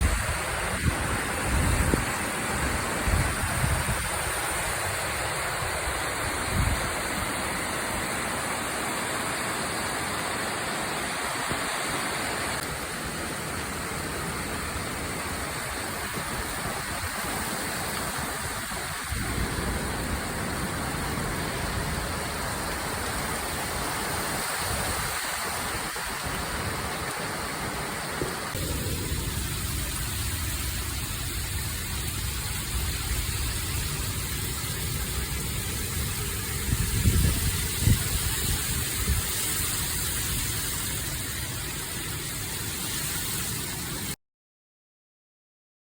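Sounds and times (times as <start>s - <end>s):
heavy rain pouring: 0.0s - 44.2s
wind thumps on microphone: 36.5s - 40.8s.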